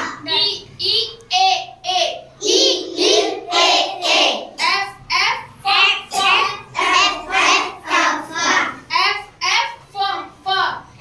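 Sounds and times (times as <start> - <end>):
children chanting: 0.0 - 0.3, 2.4 - 4.9, 5.8 - 8.9.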